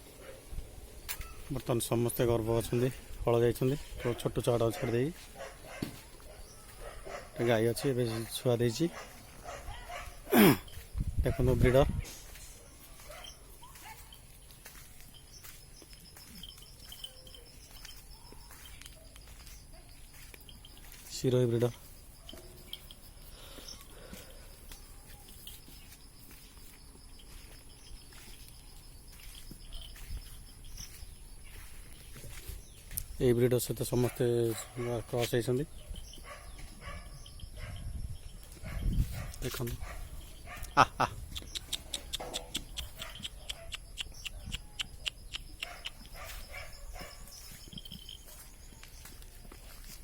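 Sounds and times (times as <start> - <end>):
hoof steps and light knocks: 0.0 - 50.0
faint steady high tone: 11.9 - 31.8.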